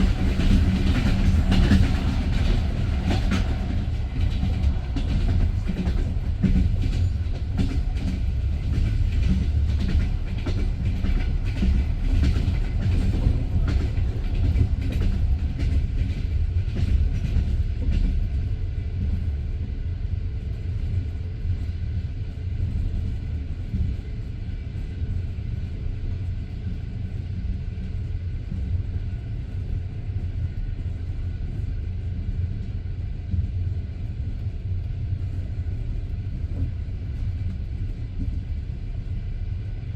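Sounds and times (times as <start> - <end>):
train wheels clicking over rail joints: 0.0 - 18.3
train carriage rumbling: 0.0 - 39.9.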